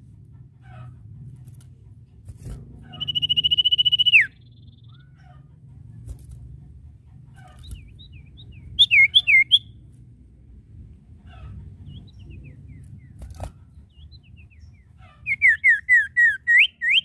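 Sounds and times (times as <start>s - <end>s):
bird trilled whistle: 2.9s - 4.8s, 8.8s - 9.7s, 15.3s - 17.0s
bird short down-slurred whistles: 3.0s - 4.4s.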